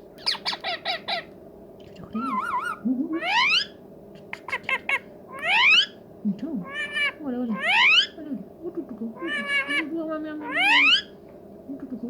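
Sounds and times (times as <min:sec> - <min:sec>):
parakeet chirps and whistles: 0:00.2 - 0:01.3, 0:05.4 - 0:06.0, 0:10.4 - 0:11.1.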